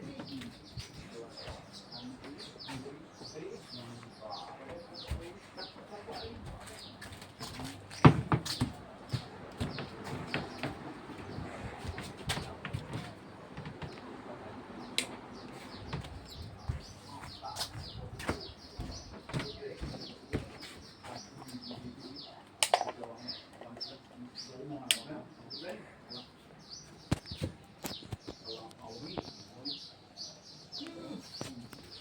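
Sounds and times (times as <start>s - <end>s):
birds chirping: 0.0s - 32.0s.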